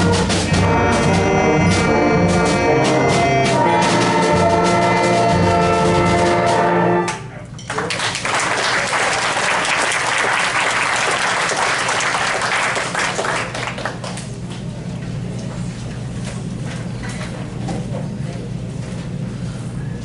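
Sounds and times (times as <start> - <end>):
band playing held chord: 0.0 - 7.5
audience applauding: 7.7 - 14.4.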